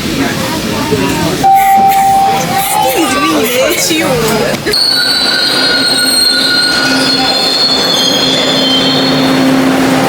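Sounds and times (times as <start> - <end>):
high-pitched squealing tones: 1.4 - 3.2, 4.7 - 9.9.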